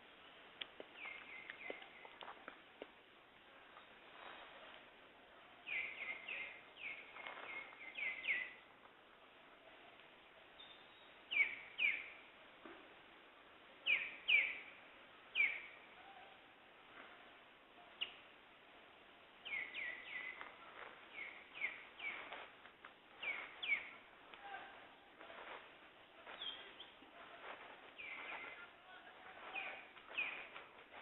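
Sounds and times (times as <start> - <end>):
birds calling with downward notes: 23.2 - 24.0, 26.2 - 31.0.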